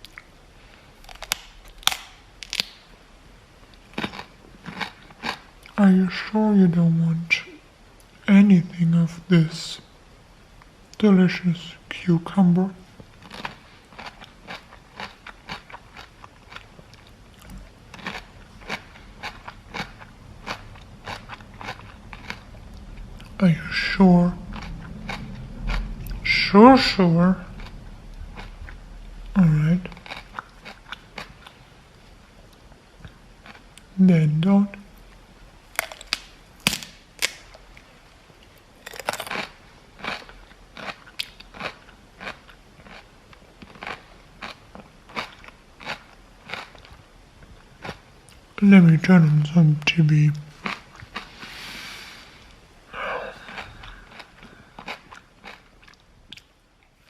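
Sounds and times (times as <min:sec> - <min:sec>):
person chewing crunchy food: 0:01.0 - 0:02.8, 0:03.8 - 0:05.8, 0:13.0 - 0:23.4, 0:24.4 - 0:31.6, 0:35.7 - 0:37.6, 0:38.5 - 0:47.0, 0:50.5 - 0:56.5.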